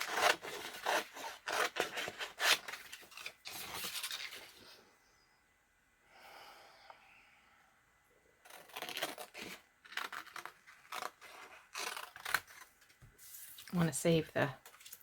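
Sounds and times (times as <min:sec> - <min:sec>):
paper rustling: 0:00.0 - 0:04.6, 0:08.8 - 0:15.0.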